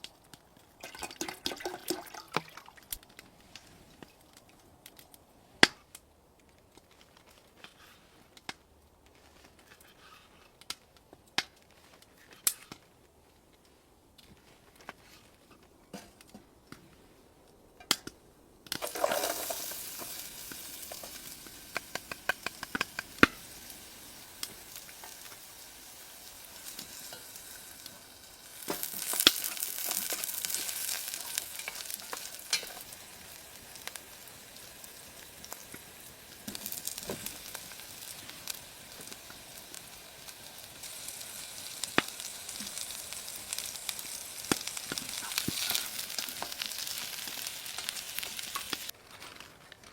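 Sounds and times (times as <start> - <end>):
food sizzling in a pan: 18.8 - 48.9.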